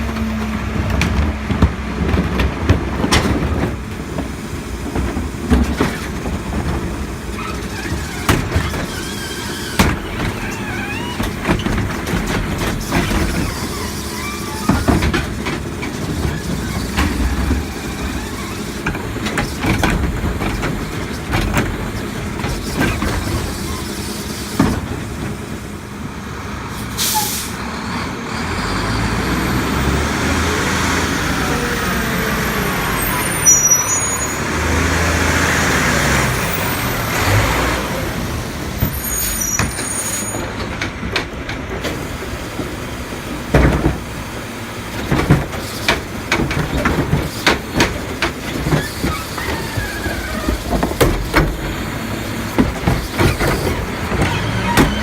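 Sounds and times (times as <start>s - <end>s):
knocks and clanks: 0.0s - 25.7s, 38.2s - 55.0s
garbage truck diesel engine running: 0.0s - 55.0s
air brake hiss: 26.8s - 27.6s.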